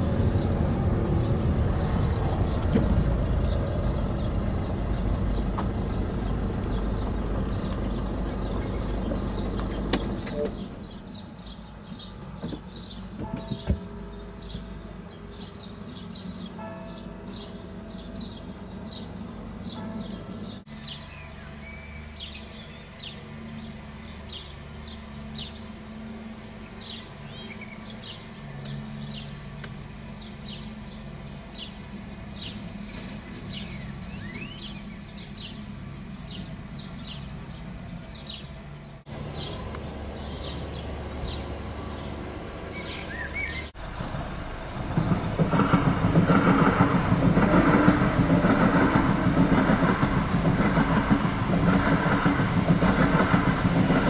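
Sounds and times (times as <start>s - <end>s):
passenger train passing: 0.0s - 12.2s, 12.8s - 21.5s, 37.6s - 54.0s
car engine idling: 0.0s - 15.7s
small birds chirping: 0.0s - 25.9s, 26.6s - 43.8s.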